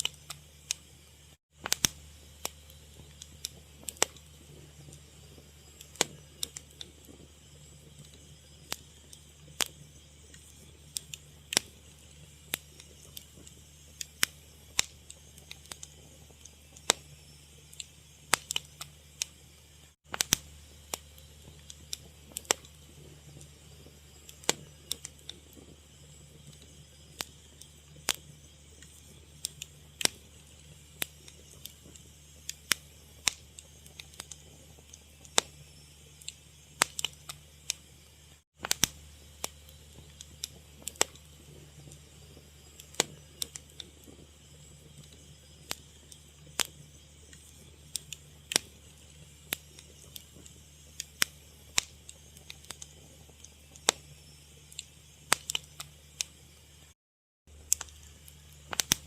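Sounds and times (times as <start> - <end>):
fire crackling: 0.0 - 59.0
low steady hum: 57.5 - 59.0.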